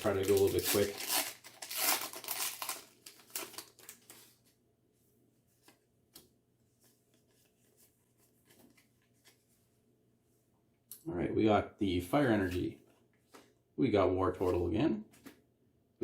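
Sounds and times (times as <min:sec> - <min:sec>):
foil wrapper tearing and crinkling: 0:00.0 - 0:04.2.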